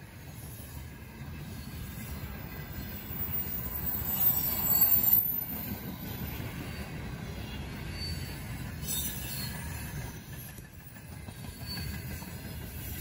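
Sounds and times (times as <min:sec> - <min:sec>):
rumble of wheels on rails: 0:00.0 - 0:13.0
high wheel squeal: 0:02.9 - 0:05.7, 0:06.7 - 0:10.7, 0:11.3 - 0:13.0.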